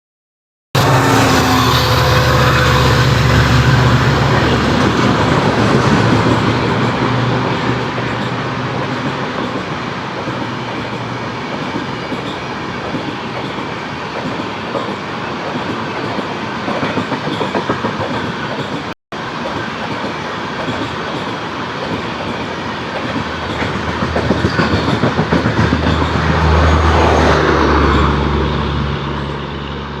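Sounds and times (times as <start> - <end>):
train passing at high speed: 0.8 - 30.0
wheels clattering over rail joints: 4.4 - 28.2.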